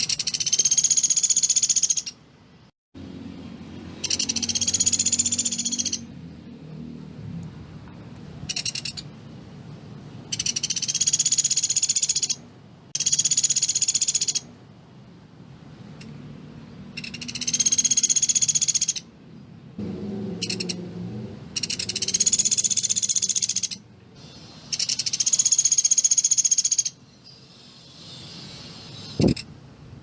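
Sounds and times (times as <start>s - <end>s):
bird calling in high trills: 0.0s - 2.2s, 4.0s - 6.1s, 10.3s - 12.4s, 13.0s - 14.5s, 17.0s - 19.1s, 21.6s - 29.5s.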